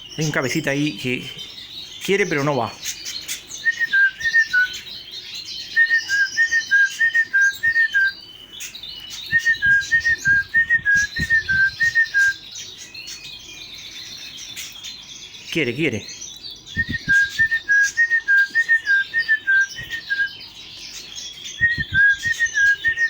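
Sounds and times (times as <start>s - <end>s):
finches chirping: 0.0s - 23.0s
person whistling bird call: 3.6s - 4.8s, 5.7s - 8.2s, 9.2s - 12.4s, 16.7s - 20.4s, 21.5s - 23.0s.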